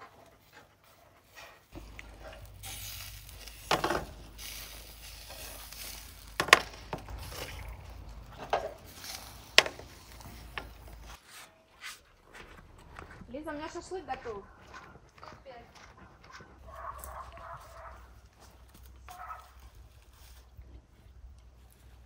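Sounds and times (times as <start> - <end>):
liver sizzling: 1.7 - 11.1.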